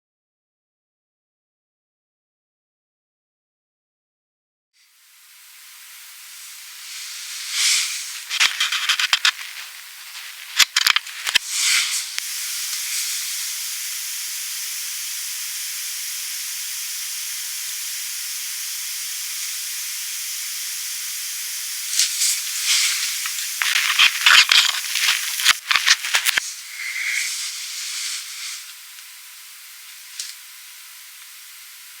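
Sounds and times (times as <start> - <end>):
headphone circuit hiss: 4.8 - 32.0
loud cracks and crackles: 7.2 - 12.3, 21.9 - 30.5.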